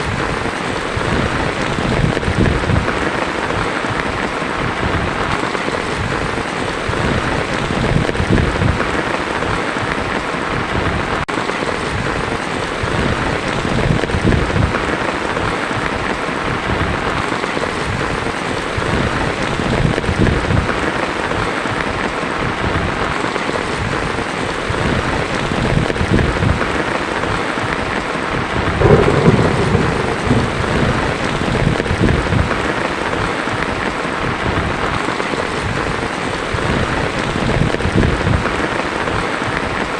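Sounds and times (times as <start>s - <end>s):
heavy rain on a tin roof: 0.0s - 39.9s
rolling thunder: 0.1s - 3.4s, 28.5s - 34.9s.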